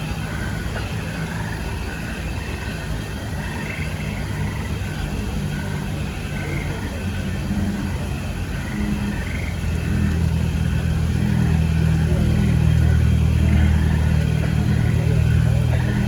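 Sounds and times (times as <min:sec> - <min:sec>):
deep rumbling: 0:04.0 - 0:16.0.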